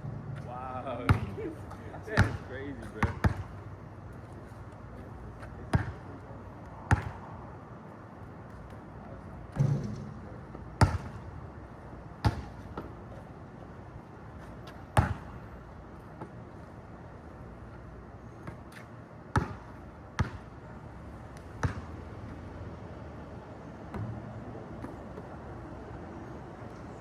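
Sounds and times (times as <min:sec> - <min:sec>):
basketball bouncing on court: 0:01.1 - 0:01.4, 0:02.2 - 0:03.5, 0:05.7 - 0:06.0, 0:06.9 - 0:07.2, 0:10.8 - 0:11.2, 0:12.2 - 0:12.6, 0:15.0 - 0:15.3, 0:19.3 - 0:20.5, 0:21.6 - 0:21.9.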